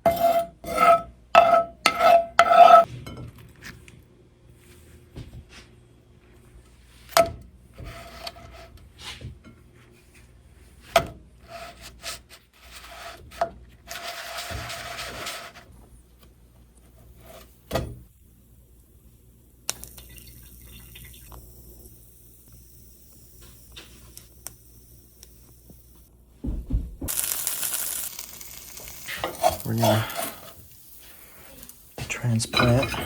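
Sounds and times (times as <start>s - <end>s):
water running: 19.7s - 22.0s
faint steady hiss: 27.1s - 33.0s
kitchenware clinking: 32.0s - 33.0s.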